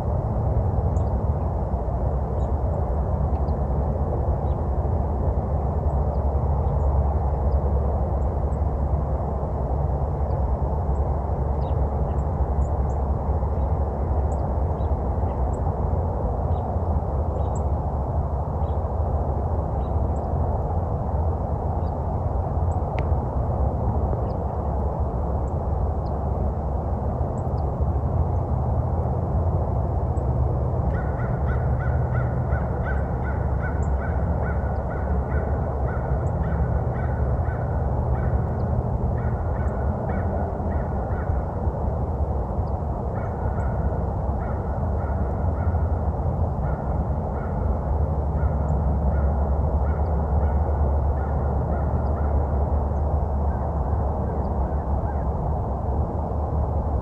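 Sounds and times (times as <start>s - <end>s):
steady low rumble: 0.0s - 57.0s.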